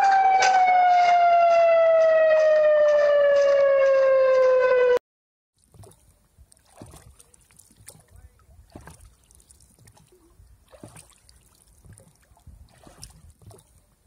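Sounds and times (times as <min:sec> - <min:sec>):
warning siren falling tone: 0:00.0 - 0:05.0.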